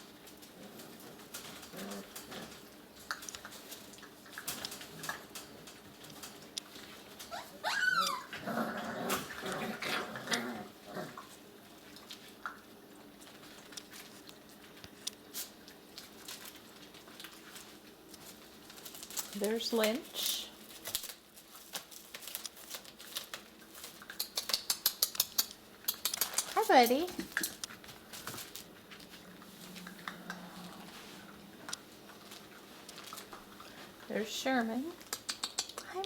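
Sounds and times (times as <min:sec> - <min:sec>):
puppy growling: 0:00.3 - 0:06.4, 0:07.2 - 0:11.5, 0:28.8 - 0:34.1
puppy yelping: 0:07.2 - 0:08.4
small clicks and taps: 0:22.1 - 0:29.2, 0:35.0 - 0:36.0.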